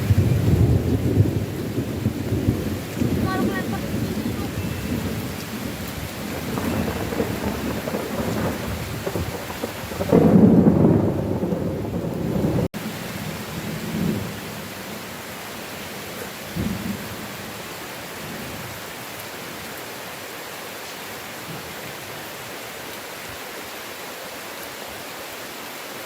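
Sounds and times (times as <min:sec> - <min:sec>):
rumbling thunder: 0:00.0 - 0:14.6, 0:16.5 - 0:17.3
heavy rain: 0:00.0 - 0:26.0.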